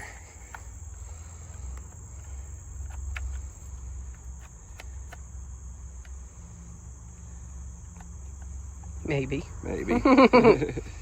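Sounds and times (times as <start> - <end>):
crickets trilling: 0.0 - 11.0
light clicks and taps: 0.4 - 6.4, 7.8 - 9.0.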